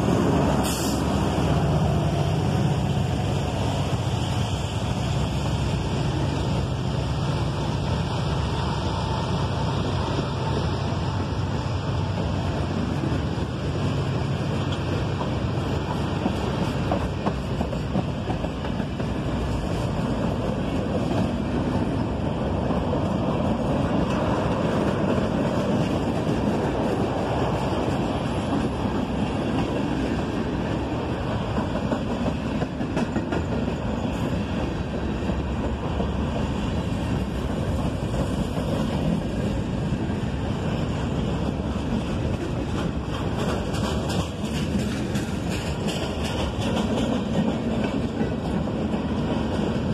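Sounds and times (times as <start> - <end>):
freight train rumbling past: 0.0 - 49.9.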